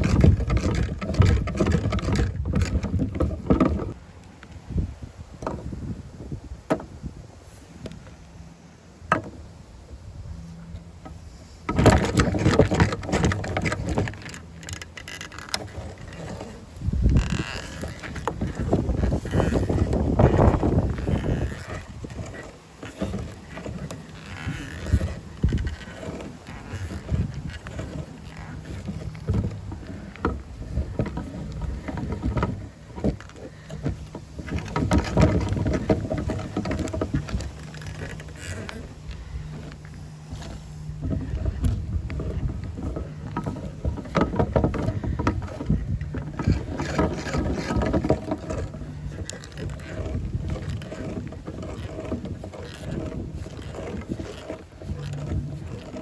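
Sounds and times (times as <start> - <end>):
meat grinder crunching soap: 11.7 - 56.0.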